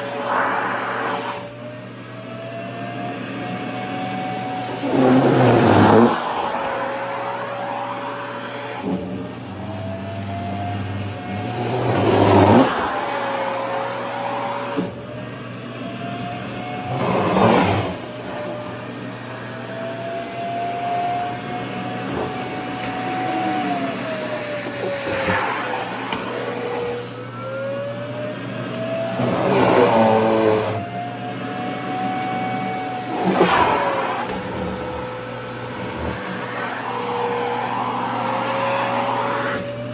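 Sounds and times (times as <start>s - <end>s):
rushing surges of air: 0.0s - 1.6s
vacuum cleaner motor whine: 0.0s - 39.9s.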